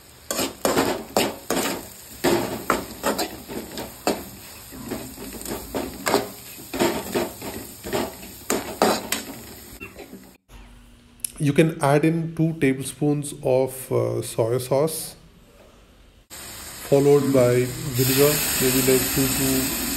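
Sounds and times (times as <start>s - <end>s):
spoon scraping cooking pan: 0.3s - 10.3s.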